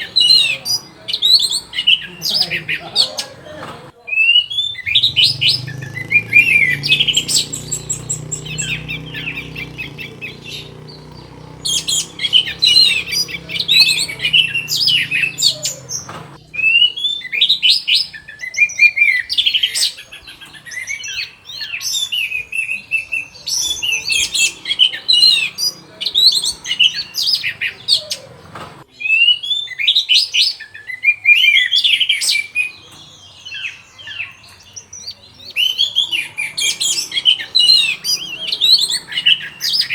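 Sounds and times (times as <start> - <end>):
thrush singing: 0.0 - 21.6, 35.6 - 39.9.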